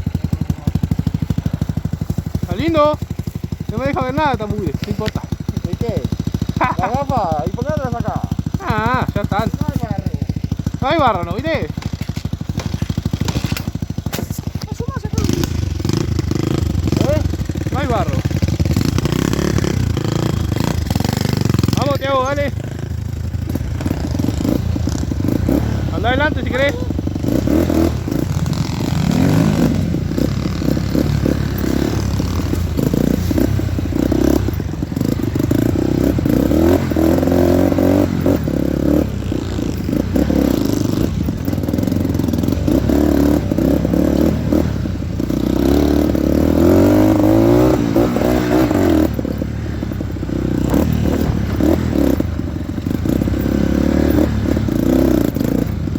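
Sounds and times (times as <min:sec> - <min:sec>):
dirt bike engine revving: 0:00.0 - 0:55.9
clattering and scraping: 0:11.8 - 0:14.8.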